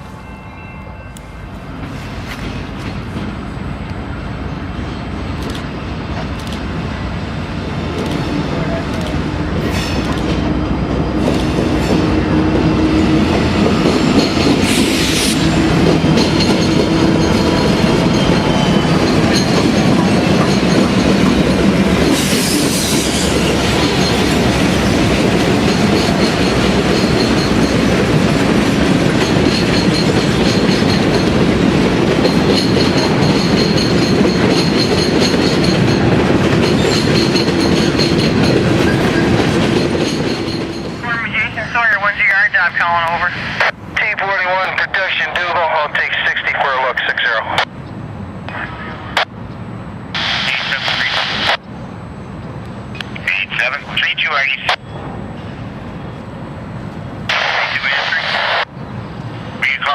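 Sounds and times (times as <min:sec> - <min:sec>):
train wheels clicking over rail joints: 0:07.9 - 0:12.2, 0:13.3 - 0:41.0.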